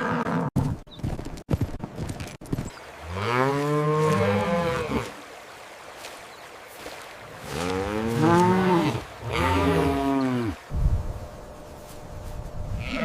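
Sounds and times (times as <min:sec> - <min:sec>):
cow mooing: 0:03.1 - 0:05.1, 0:07.4 - 0:10.6, 0:12.8 - 0:13.0.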